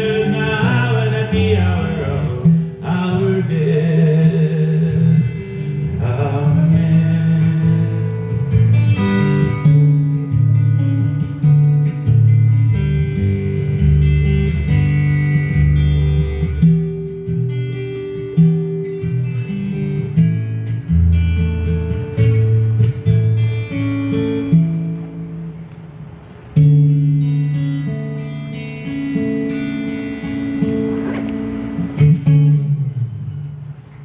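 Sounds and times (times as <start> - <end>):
person singing: 0.0 - 8.1
acoustic guitar strumming and picking: 0.0 - 34.0.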